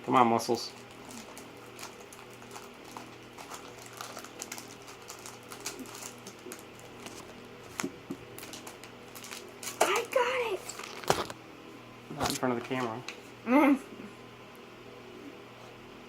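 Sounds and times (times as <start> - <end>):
card pack crinkling: 0.8 - 11.4.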